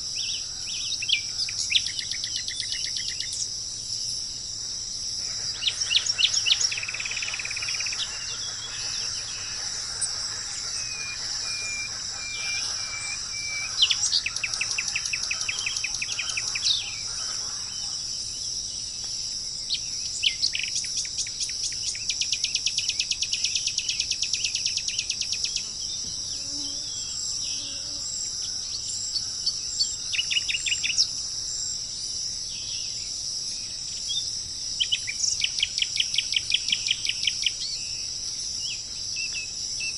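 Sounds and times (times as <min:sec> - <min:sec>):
high insect chorus: 0:00.0 - 0:39.9
birds whistling and trilling: 0:05.3 - 0:18.2.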